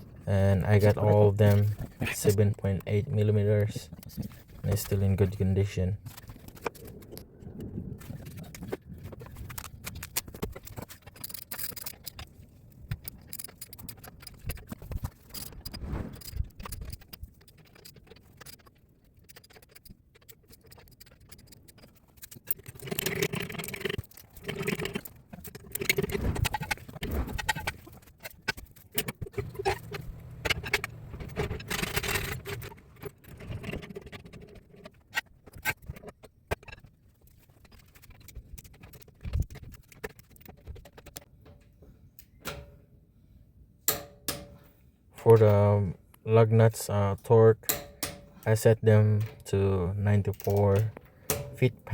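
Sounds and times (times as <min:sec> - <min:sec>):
metal clinks and scraping: 0:09.2 - 0:41.1.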